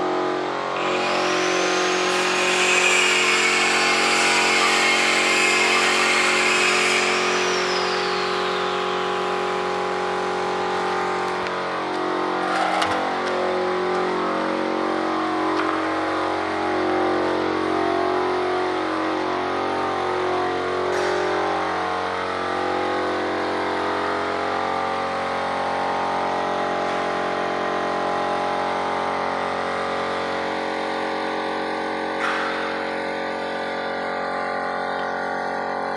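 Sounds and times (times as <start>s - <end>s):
motor running: 0.8s - 24.6s.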